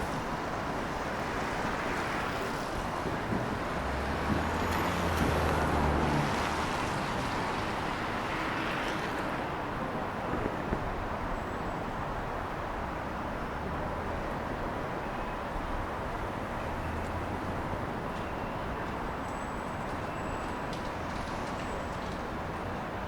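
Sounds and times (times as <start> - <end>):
tyres hissing on wet road: 0.0 - 11.3.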